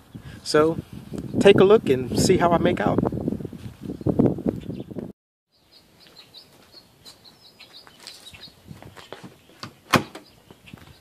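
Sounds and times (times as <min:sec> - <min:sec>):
small birds chirping: 0:03.9 - 0:11.0.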